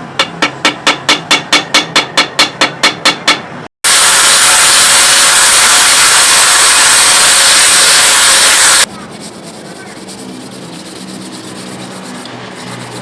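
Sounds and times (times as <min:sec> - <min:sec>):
high-pitched grinding hiss: 0:03.9 - 0:08.9.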